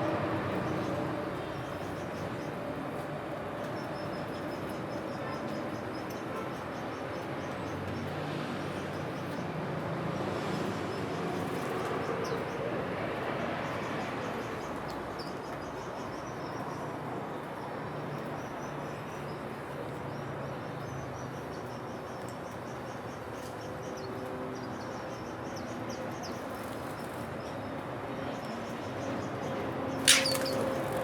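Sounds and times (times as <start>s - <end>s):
small birds chirping trills: 13.7s - 31.0s.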